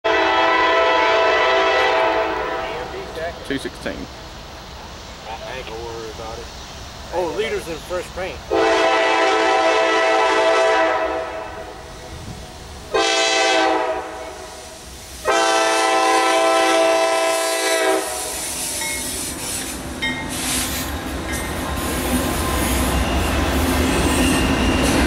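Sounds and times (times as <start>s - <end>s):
locomotive air horn: 0.0s - 2.9s, 8.5s - 11.8s, 12.9s - 18.8s
freight train rumbling past: 0.0s - 25.0s
thin wheel squeals: 22.5s - 25.0s.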